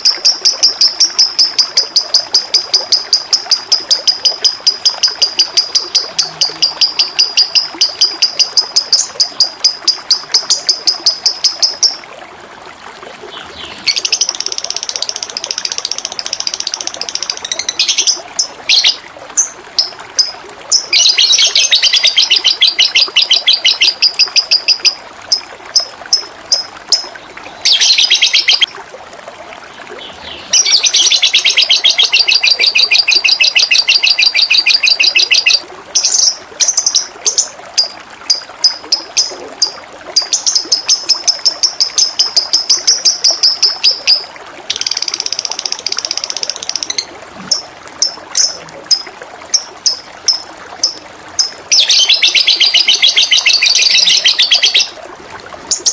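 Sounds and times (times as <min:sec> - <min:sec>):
songbird singing rapid high notes: 0:00.0 - 0:12.0, 0:13.5 - 0:25.0, 0:25.8 - 0:28.7, 0:30.2 - 0:37.9, 0:49.6 - 0:55.0
running water: 0:00.0 - 0:55.9.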